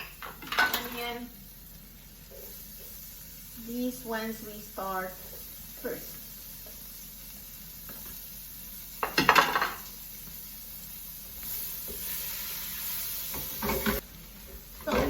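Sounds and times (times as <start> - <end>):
metal utensil scraping frying pan: 0.0 - 1.2, 11.5 - 14.0
onion sizzling in butter: 0.0 - 15.0.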